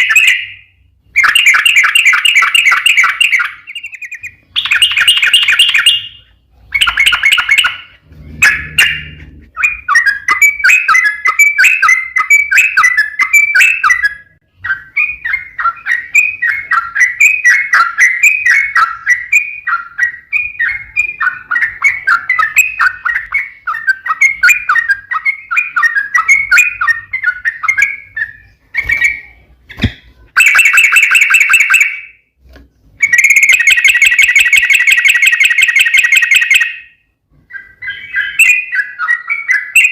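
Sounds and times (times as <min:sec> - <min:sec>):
bulbul chattering song: 0:00.0 - 0:32.3, 0:33.0 - 0:39.9.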